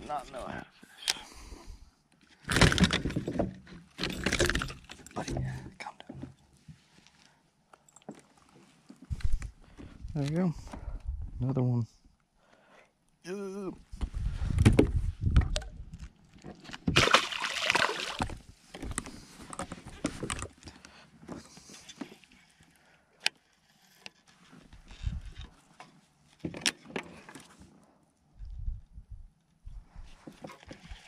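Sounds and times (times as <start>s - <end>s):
water sloshing: 16.9s - 18.4s.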